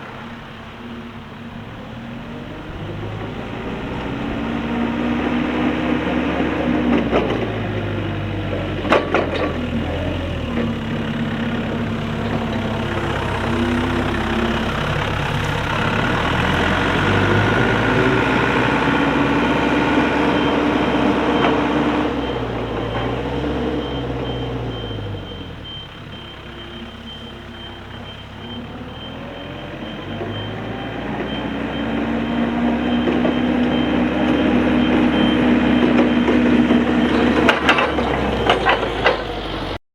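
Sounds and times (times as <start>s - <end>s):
forklift diesel engine running: 0.0s - 39.8s
high-pitched beeping: 9.3s - 39.8s.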